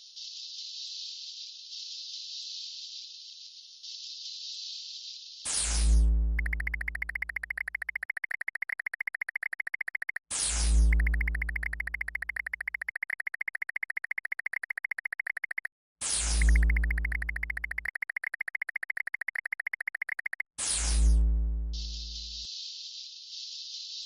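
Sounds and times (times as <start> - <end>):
electronic buzzing trill: 6.3 - 20.4.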